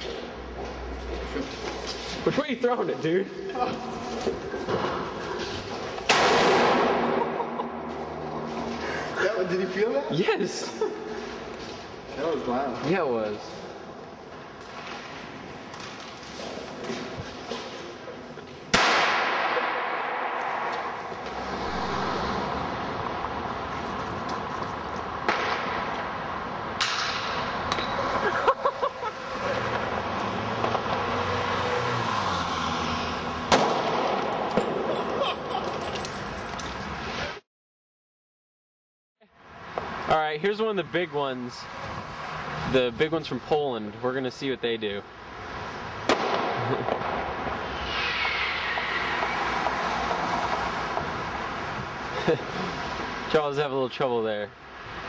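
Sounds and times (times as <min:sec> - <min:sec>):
steady background noise: 0:00.0 - 0:37.4, 0:39.3 - 0:55.0
firecrackers banging: 0:06.0 - 0:08.7, 0:18.7 - 0:23.0, 0:33.5 - 0:35.2, 0:46.1 - 0:49.8
fireworks hiss and crackle: 0:47.6 - 0:49.4
falling firework whistle: 0:47.6 - 0:49.5.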